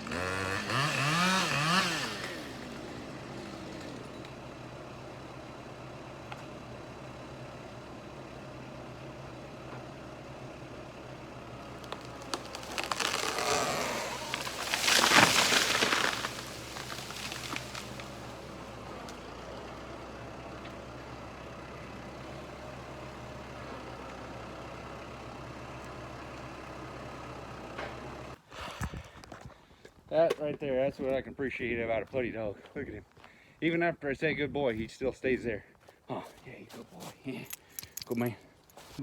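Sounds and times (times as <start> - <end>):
tractor diesel engine running: 0.0 - 28.4
tree trunk cracking and splitting: 11.4 - 19.4
tree crashing to the ground: 11.6 - 18.7.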